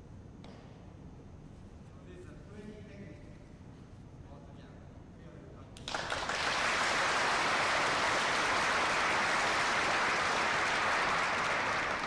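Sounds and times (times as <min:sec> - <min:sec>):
group of people clapping: 0:05.8 - 0:12.0.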